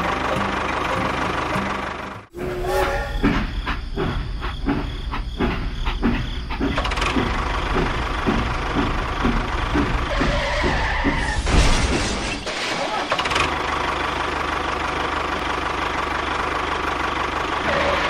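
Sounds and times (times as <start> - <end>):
regular knocking: 3.2 - 11.2.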